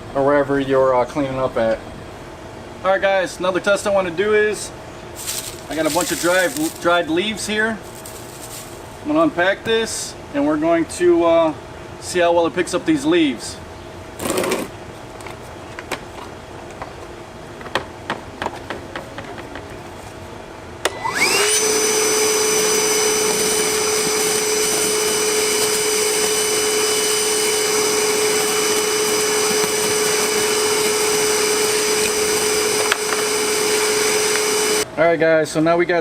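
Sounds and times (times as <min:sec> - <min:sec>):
vacuum cleaner motor whining: 0:05.2 - 0:06.8, 0:20.8 - 0:34.9.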